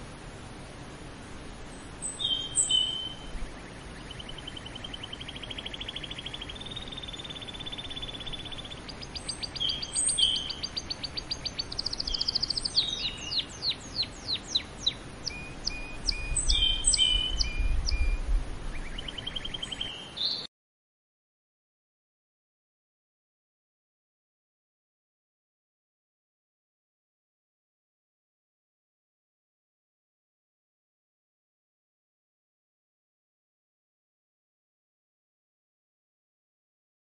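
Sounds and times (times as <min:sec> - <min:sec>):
canary singing: 0:02.0 - 0:20.5.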